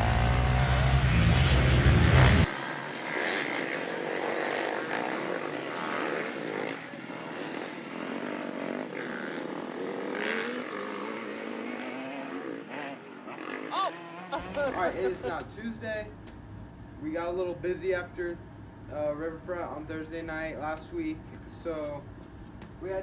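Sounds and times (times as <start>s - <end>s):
dirt bike engines revving: 0.0s - 17.9s.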